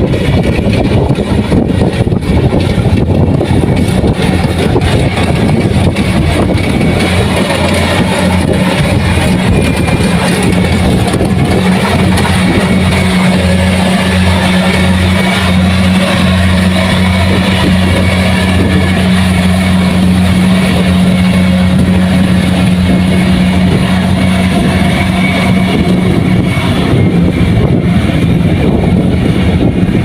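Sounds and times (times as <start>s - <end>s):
combine harvester diesel engine running: 0.0s - 30.0s.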